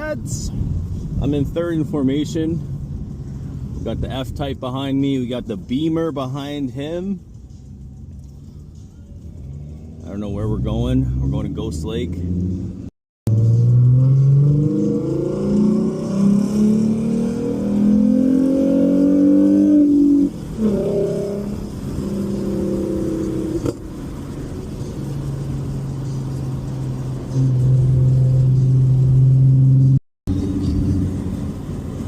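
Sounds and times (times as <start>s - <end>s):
car engine accelerating: 7.2s - 32.0s.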